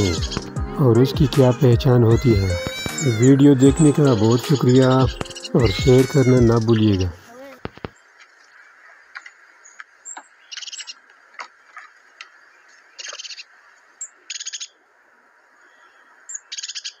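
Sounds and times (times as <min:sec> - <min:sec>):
bird trilled chirps: 0:10.1 - 0:11.0, 0:16.3 - 0:17.0
faint steady hiss: 0:12.1 - 0:16.5.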